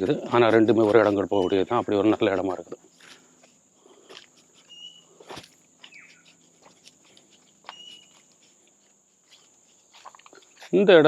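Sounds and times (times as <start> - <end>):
footsteps on forest trail: 0.0 - 11.0
insects droning: 0.0 - 11.0
bird whistling: 4.6 - 5.2, 5.8 - 6.4, 7.6 - 8.3.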